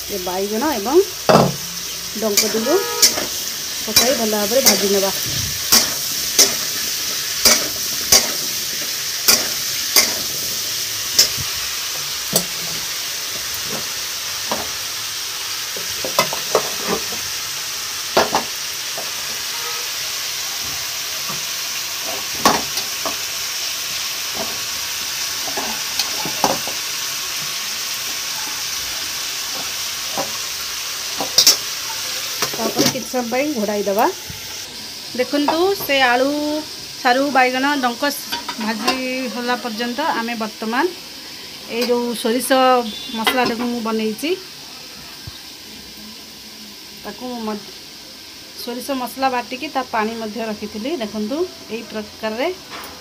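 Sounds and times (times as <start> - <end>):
vegetables sizzling in a pan: 0.0 - 53.0
metal spatula knocking on a pan: 1.3 - 1.8, 2.4 - 3.3, 3.9 - 5.0, 7.4 - 8.5, 9.3 - 10.3.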